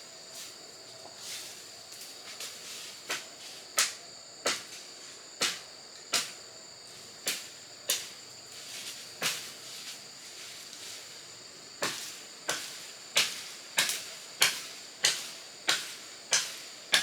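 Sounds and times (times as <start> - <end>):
insects trilling: 0.0 - 17.0
hand tool striking wood: 3.1 - 4.8, 5.4 - 6.4, 11.8 - 17.0.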